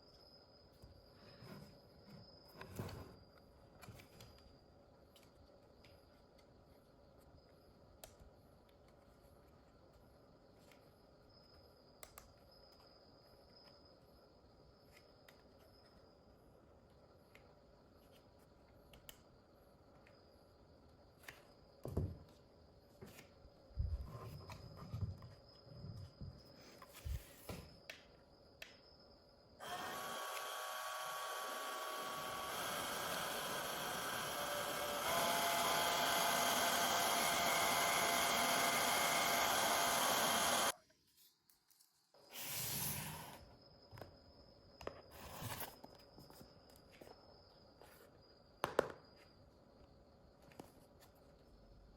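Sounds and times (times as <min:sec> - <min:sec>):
mini fan whirring: 0:29.6 - 0:40.8.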